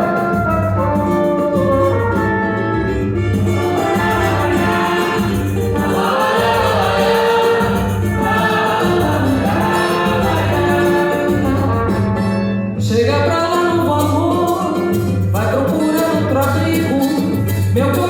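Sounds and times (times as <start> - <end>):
samba band playing: 0.0 - 12.3
people singing: 3.6 - 12.1.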